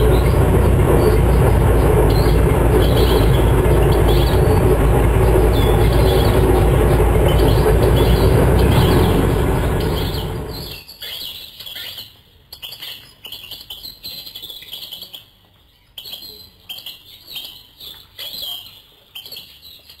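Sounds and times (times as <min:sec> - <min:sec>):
airboat engine and propeller: 0:00.0 - 0:10.8
birds chirping: 0:00.0 - 0:10.8.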